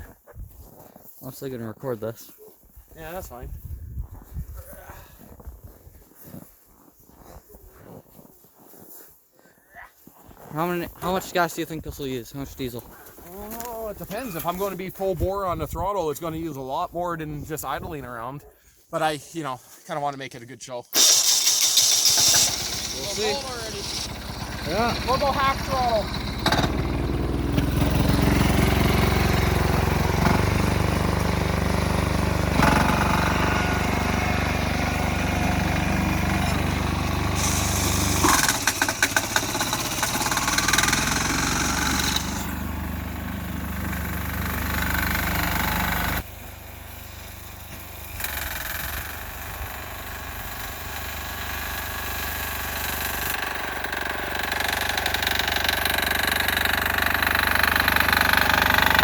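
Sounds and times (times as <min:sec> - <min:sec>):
small diesel engine running: 0:21.0 - 0:59.0.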